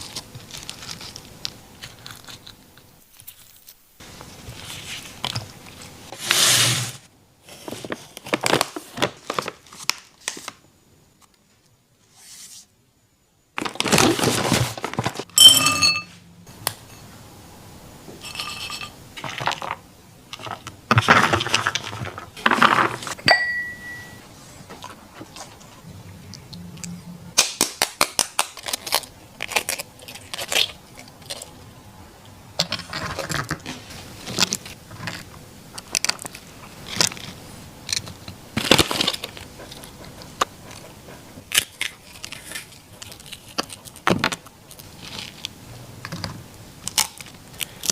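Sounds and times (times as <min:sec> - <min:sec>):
dog crunching and chewing food: 0:26.5 - 0:31.7, 0:32.5 - 0:33.6, 0:34.3 - 0:45.5.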